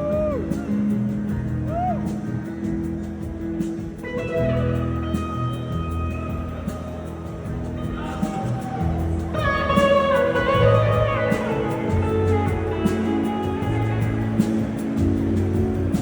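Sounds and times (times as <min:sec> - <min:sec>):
lead guitar: 0:00.0 - 0:16.0
live band music: 0:00.0 - 0:16.0.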